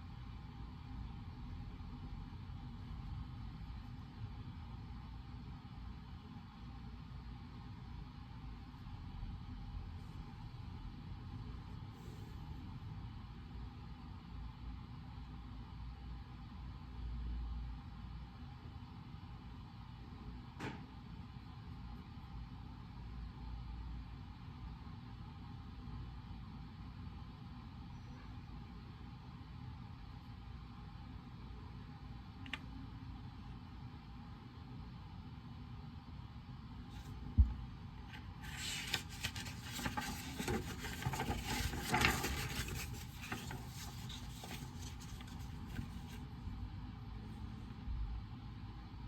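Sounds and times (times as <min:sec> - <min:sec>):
scratching on paper: 0:38.1 - 0:46.2.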